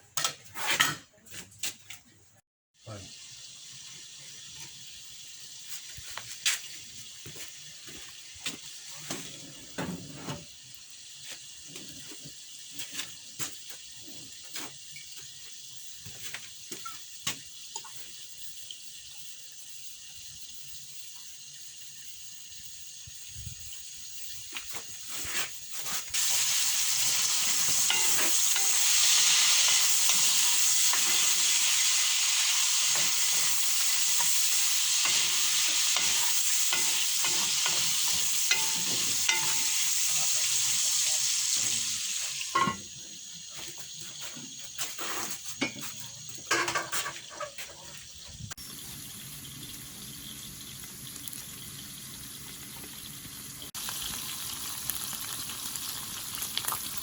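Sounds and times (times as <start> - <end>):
food sizzling in a pan: 2.8 - 57.0.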